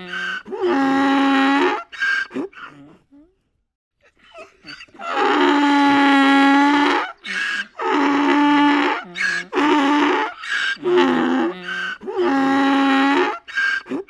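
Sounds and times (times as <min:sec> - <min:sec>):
donkey wailing cries: 0:00.0 - 0:03.0, 0:04.3 - 0:14.0
donkey catching breaths: 0:07.2 - 0:07.8, 0:10.4 - 0:10.9, 0:13.5 - 0:14.0.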